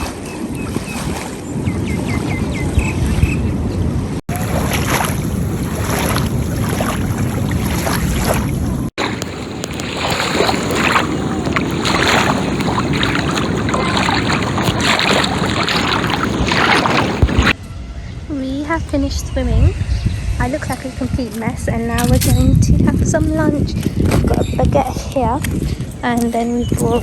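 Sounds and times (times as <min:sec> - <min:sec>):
sea water splashing and lapping: 0:00.0 - 0:17.6
wind rumbling on microphone: 0:00.0 - 0:27.0.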